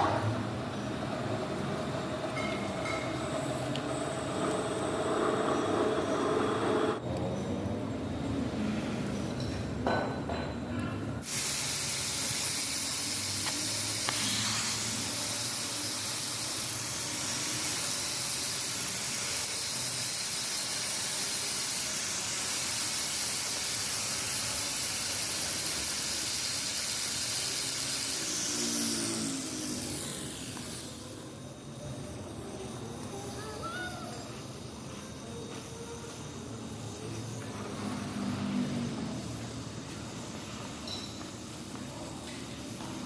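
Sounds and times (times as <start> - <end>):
grinder grinding steel: 2.3 - 7.0, 11.2 - 39.7.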